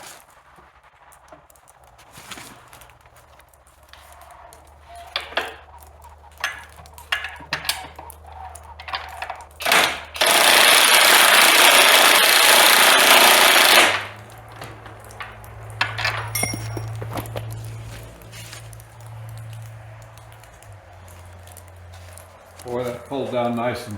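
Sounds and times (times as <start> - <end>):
handling clicks and knocks: 3.8 - 10.4, 13.8 - 23.7
cordless power tool running: 9.6 - 14.3.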